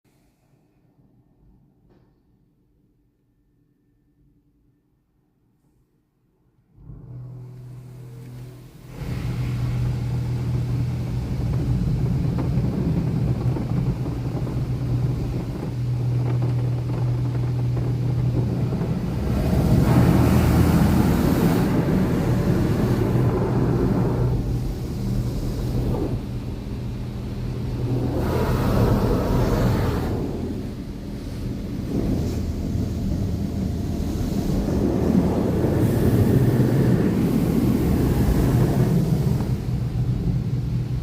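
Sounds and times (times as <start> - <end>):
car wash machinery humming: 6.8 - 41.0
water spraying: 8.8 - 41.0.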